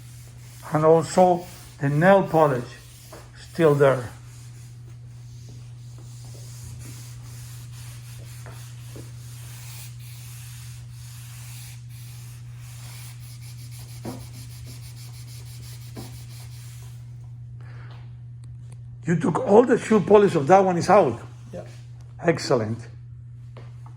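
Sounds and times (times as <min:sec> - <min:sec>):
cloth rag rubbing on vinyl: 0:00.0 - 0:17.0
steady low hum: 0:00.0 - 0:23.9.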